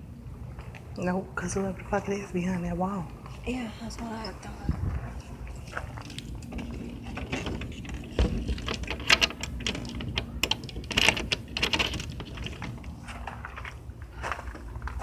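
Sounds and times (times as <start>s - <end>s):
low rumble: 3.1s - 15.0s
sharp clicks and crunches: 5.6s - 15.0s.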